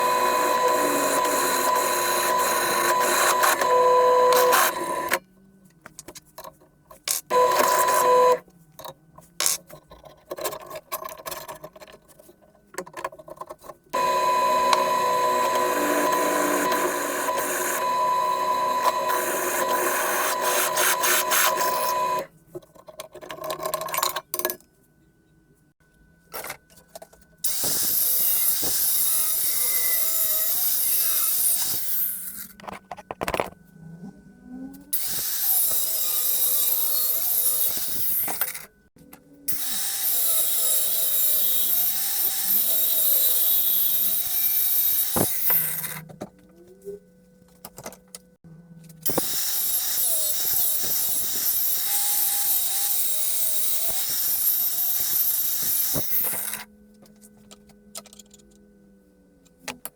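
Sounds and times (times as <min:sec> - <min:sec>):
power tool whining on metal: 0:00.0 - 0:05.2, 0:07.3 - 0:08.4, 0:14.0 - 0:22.3, 0:35.0 - 0:38.6, 0:39.5 - 0:46.1, 0:49.0 - 0:58.2
hissy bright tool sound: 0:14.0 - 0:22.3.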